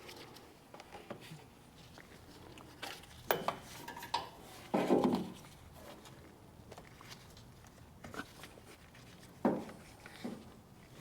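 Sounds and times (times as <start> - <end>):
light metallic clinks and knocks: 3.3 - 4.4.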